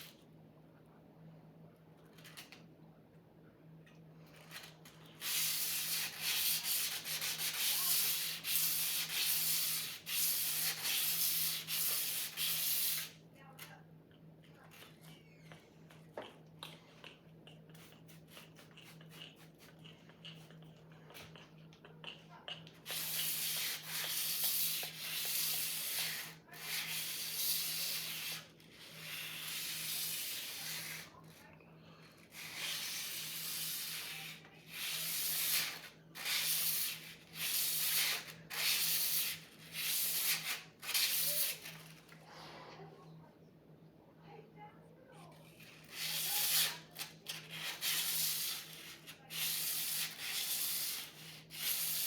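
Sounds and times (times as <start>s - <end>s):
faint low hum: 0.0s - 12.4s, 13.1s - 35.0s, 40.6s - 46.0s.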